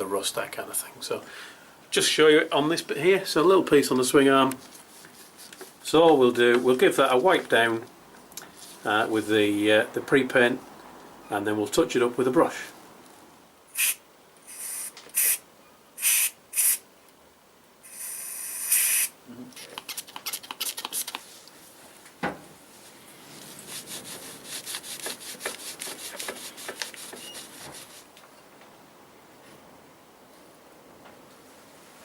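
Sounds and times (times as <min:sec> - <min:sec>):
cloth rubbing on metal part: 0:04.7 - 0:06.9, 0:22.7 - 0:28.1
short hissing bursts: 0:13.7 - 0:15.4, 0:16.0 - 0:16.9, 0:17.8 - 0:19.2.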